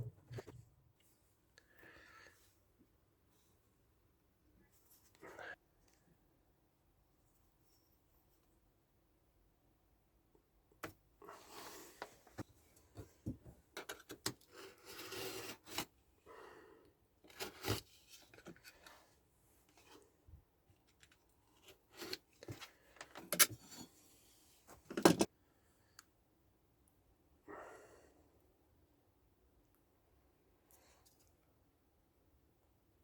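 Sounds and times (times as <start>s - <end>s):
hand work scraping and rustling: 13.8s - 15.9s, 17.2s - 20.1s.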